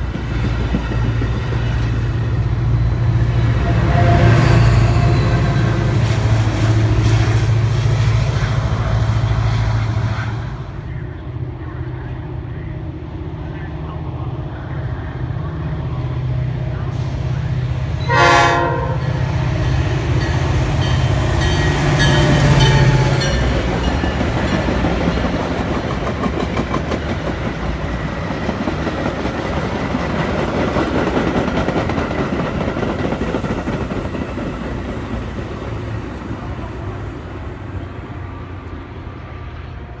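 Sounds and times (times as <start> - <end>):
locomotive engine humming: 0.0 - 40.0
train wheels clattering over rails: 20.1 - 36.1.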